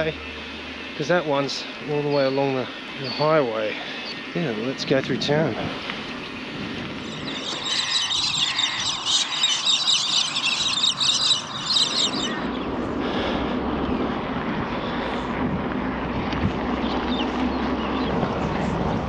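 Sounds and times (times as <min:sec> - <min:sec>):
birds chirping: 0:00.0 - 0:19.0
low rumble: 0:10.6 - 0:19.0.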